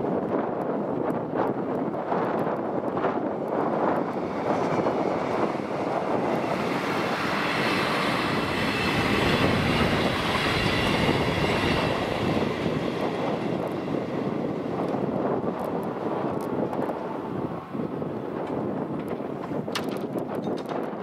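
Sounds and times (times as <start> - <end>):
diesel railcar passing: 3.1 - 19.4.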